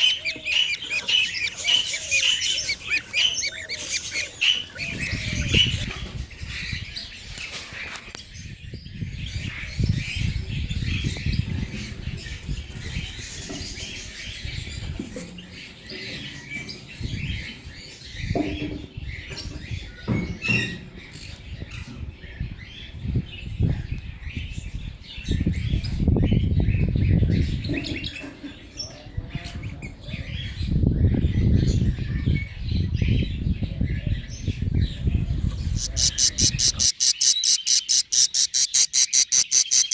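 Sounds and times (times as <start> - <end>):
budgerigars chattering and chirping: 0.0 - 7.1, 25.4 - 39.9.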